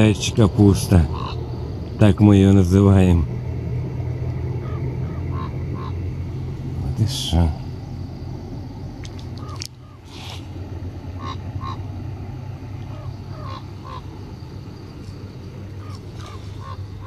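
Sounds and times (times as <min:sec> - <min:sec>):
steady low hum: 0:00.0 - 0:17.0
bird calling in clipped notes: 0:01.1 - 0:01.4, 0:09.0 - 0:10.5, 0:11.2 - 0:11.8, 0:12.7 - 0:14.2, 0:14.9 - 0:17.0.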